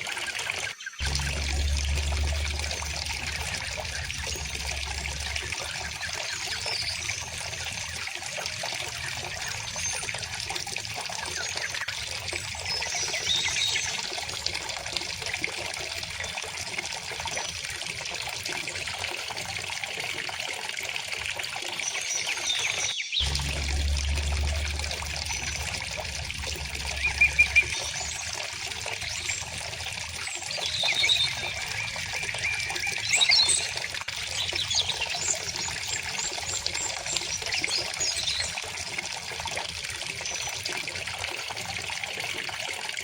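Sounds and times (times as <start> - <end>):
low rumble: 1.0 - 7.5, 23.2 - 30.2
river water flowing: 1.0 - 10.2, 23.2 - 33.7.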